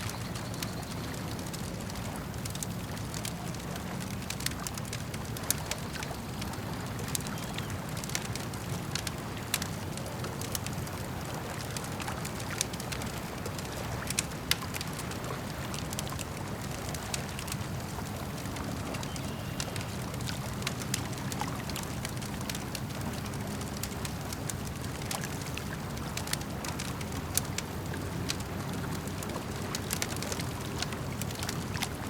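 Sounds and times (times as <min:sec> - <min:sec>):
campfire crackling and popping: 0:00.0 - 0:32.0
lake water lapping: 0:00.0 - 0:32.0.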